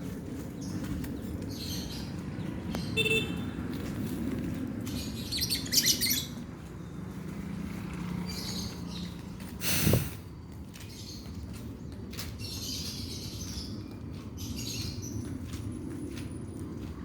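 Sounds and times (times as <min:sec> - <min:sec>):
lovebird chirping: 0:05.3 - 0:06.4.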